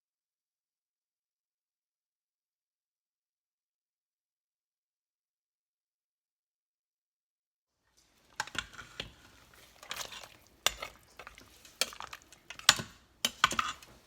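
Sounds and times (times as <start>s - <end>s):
utensil scraping metal pot: 8.0s - 14.0s.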